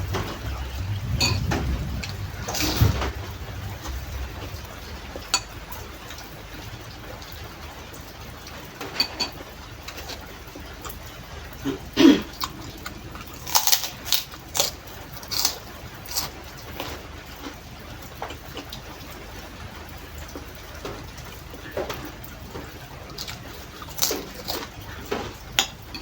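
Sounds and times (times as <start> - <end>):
cracker crunching: 12.4 - 17.0, 23.1 - 25.4.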